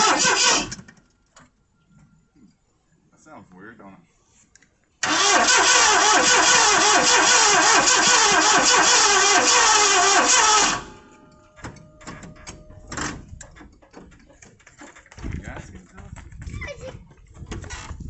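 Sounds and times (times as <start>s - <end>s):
engine cranking by starter: 0.0s - 1.1s, 5.0s - 15.1s.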